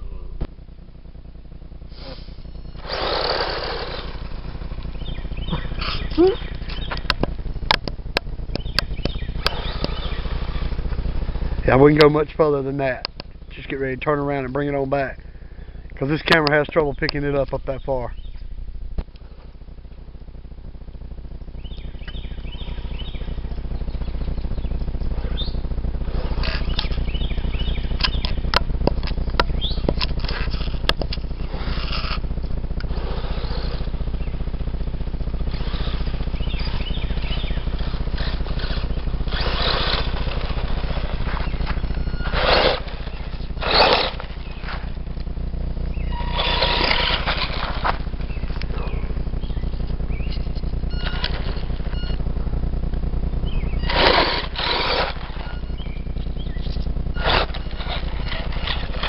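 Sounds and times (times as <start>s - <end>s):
short rushing bursts: 1.9s - 13.5s, 29.6s - 59.0s
high bird chirps: 4.9s - 7.1s, 8.6s - 10.6s, 21.6s - 25.6s, 36.0s - 37.8s, 45.9s - 46.9s, 53.4s - 54.1s, 55.4s - 57.4s.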